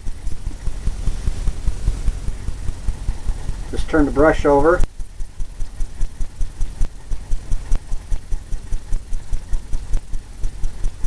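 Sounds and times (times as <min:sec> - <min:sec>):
brush tapping on canvas: 0:00.0 - 0:04.2.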